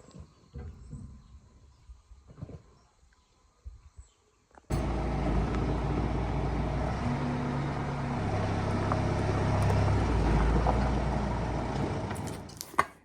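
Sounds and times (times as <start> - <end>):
vehicle engine humming: 4.7 - 12.8.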